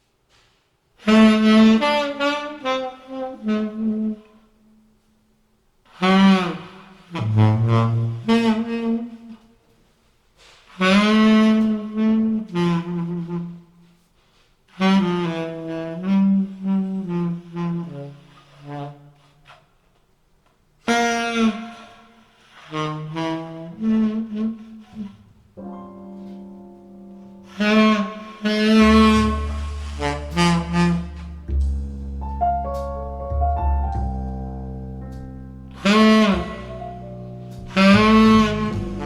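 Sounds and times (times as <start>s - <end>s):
tenor saxophone ballad: 1.0s - 4.6s, 5.9s - 19.6s, 20.8s - 39.0s
piano chords: 25.5s - 39.0s
bass line: 27.6s - 39.0s.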